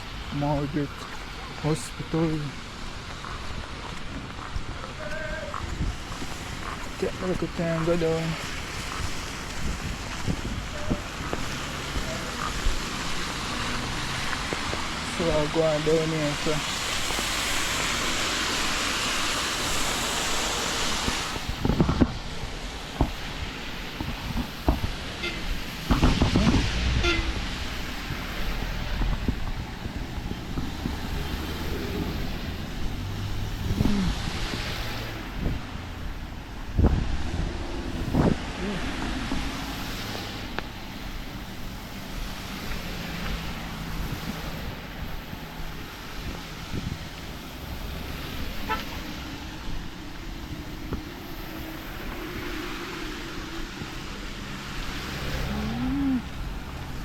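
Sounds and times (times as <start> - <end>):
heavy rain: 0.0 - 57.0
traffic on a wet road: 0.0 - 57.0
wind: 0.0 - 57.0
car horn toot: 25.2 - 25.5, 27.0 - 27.4, 48.6 - 49.0.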